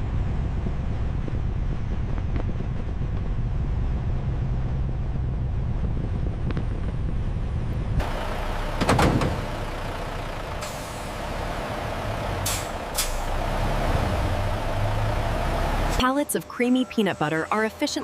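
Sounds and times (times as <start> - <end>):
truck engine rumbling: 0.0 - 18.0
air brake hiss: 12.4 - 13.3.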